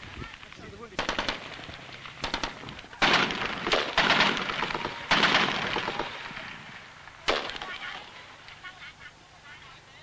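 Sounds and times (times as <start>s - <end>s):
loud gunshot bursts: 0.9s - 6.6s, 7.2s - 8.1s
automatic gunfire: 1.0s - 6.3s, 7.3s - 8.0s.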